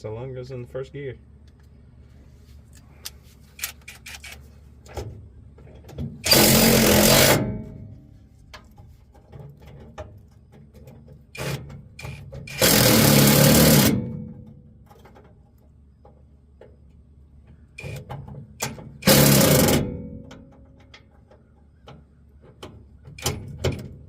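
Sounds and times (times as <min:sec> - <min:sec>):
cordless power driver running: 0:06.3 - 0:07.4, 0:12.4 - 0:14.0, 0:19.0 - 0:19.8.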